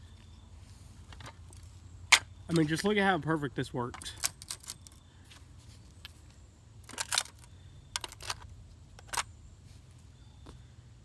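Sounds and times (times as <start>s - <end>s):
plastic clicks: 6.9s - 9.3s.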